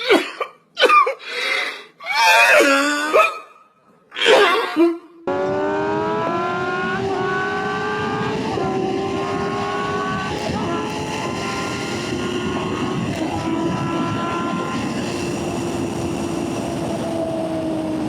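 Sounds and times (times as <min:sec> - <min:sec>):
motorcycle engine at high revs: 0:05.3 - 0:18.0
wind noise: 0:05.3 - 0:18.0.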